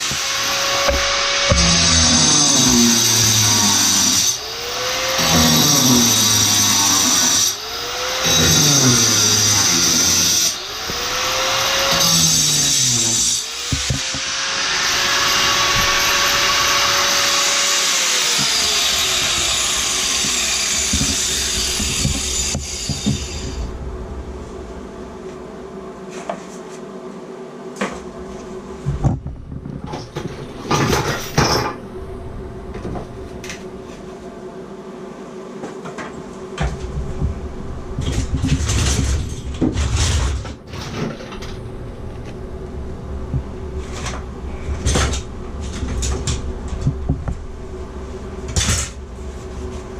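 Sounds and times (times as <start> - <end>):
power saw cutting tile: 0.0 - 23.7
knocks clicks and scrapes: 18.4 - 23.6.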